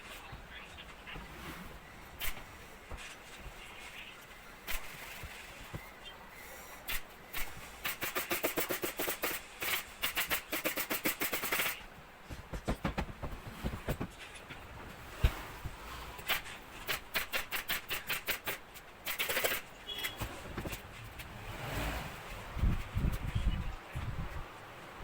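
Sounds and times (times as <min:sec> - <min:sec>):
rapid sharp taps: 0:06.8 - 0:21.3
dull knocks: 0:12.2 - 0:15.8.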